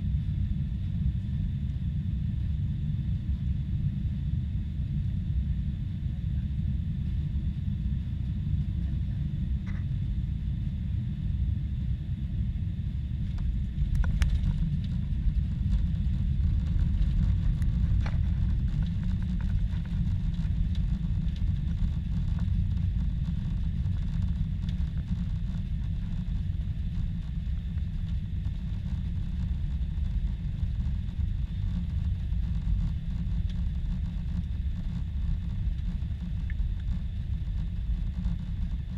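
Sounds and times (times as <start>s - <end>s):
airliner engine rumble: 0.0s - 38.9s.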